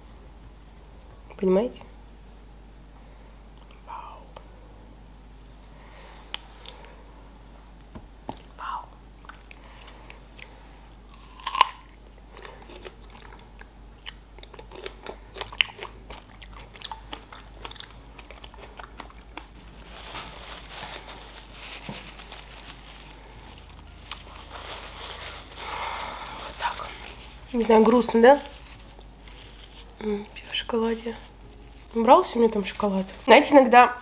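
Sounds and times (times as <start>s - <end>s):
wet chewing: 11.1s - 19.6s.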